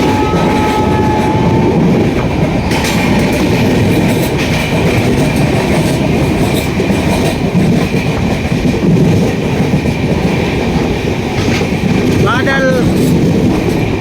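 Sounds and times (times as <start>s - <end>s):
thin high tone: 0.0s - 3.6s
train rumbling on track: 0.0s - 14.0s
train wheel clatter: 0.0s - 14.0s.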